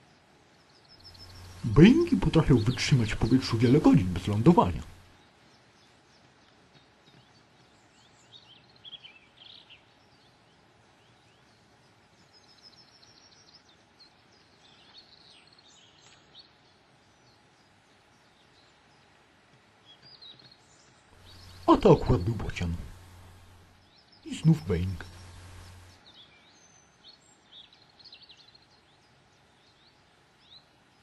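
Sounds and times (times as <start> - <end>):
faint songbird chirps: 0.0 - 31.0.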